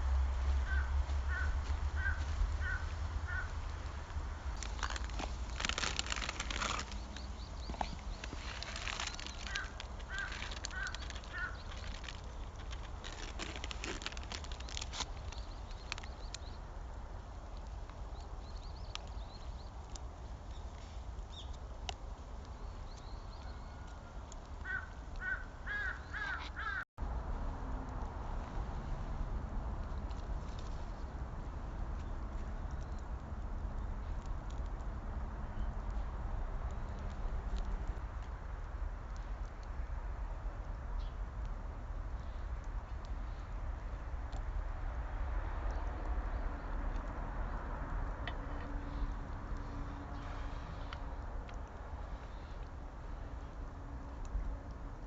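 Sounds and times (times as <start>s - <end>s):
low outdoor rumble: 0.0s - 55.0s
crow cawing: 0.6s - 3.6s, 9.4s - 11.6s, 24.6s - 26.8s
crackling rustling clicks: 2.0s - 25.4s, 35.6s - 40.0s, 45.6s - 53.2s
bird calling: 4.6s - 14.0s, 24.6s - 26.8s.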